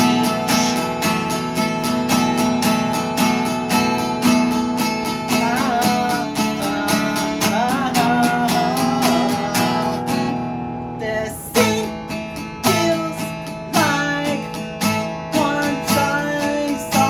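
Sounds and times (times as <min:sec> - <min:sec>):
acoustic guitar strumming: 0:00.0 - 0:17.0
person singing wordless line: 0:05.3 - 0:10.4, 0:11.0 - 0:17.0.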